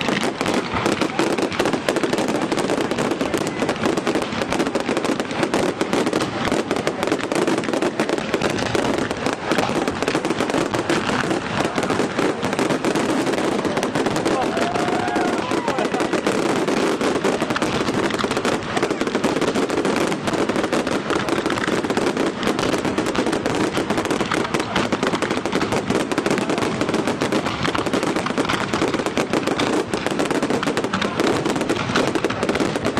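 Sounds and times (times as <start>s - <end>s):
fireworks barrage: 0.0s - 32.9s.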